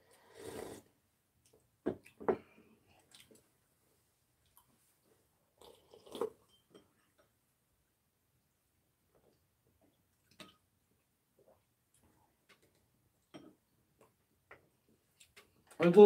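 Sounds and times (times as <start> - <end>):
people chewing food: 1.4 - 3.5, 5.6 - 7.3, 9.1 - 15.8.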